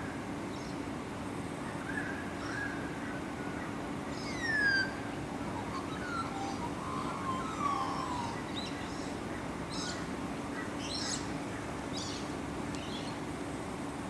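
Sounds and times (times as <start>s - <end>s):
steady low hum: 0.0s - 14.0s
bird whistling downward notes: 4.2s - 10.0s.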